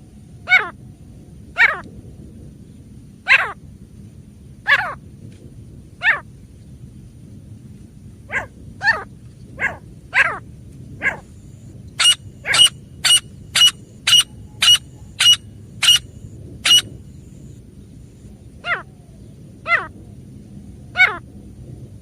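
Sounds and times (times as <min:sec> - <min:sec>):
francolin calling: 0:11.0 - 0:17.6.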